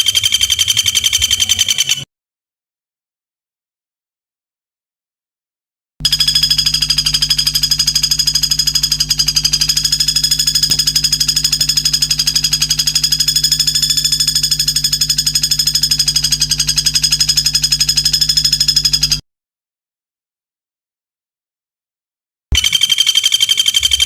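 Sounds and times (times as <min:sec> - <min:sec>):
rapid high bird trill: 0:00.0 - 0:02.0, 0:22.6 - 0:24.0.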